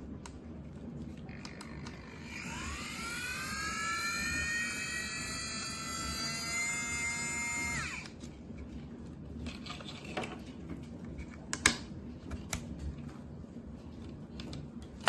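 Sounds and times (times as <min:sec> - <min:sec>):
small motor whining: 0:01.4 - 0:08.1.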